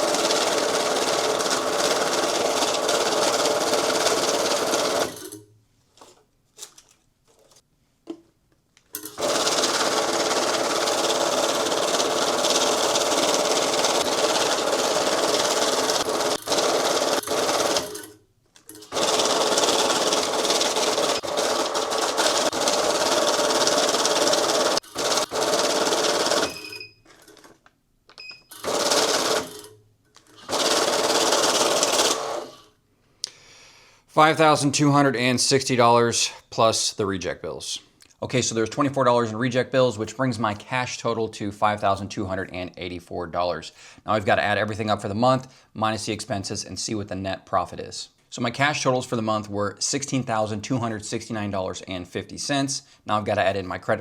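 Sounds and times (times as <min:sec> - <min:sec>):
bill-counting machine running: 0:00.0 - 0:05.4, 0:09.0 - 0:18.1, 0:18.8 - 0:26.9, 0:28.5 - 0:29.7, 0:30.4 - 0:32.6.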